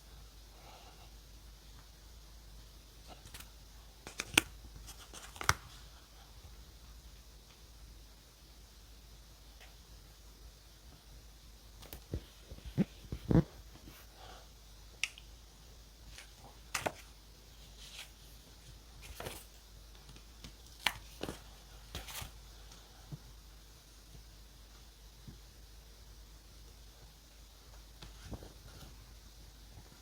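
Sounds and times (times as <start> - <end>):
paper rustling: 3.1 - 5.9, 16.1 - 22.4.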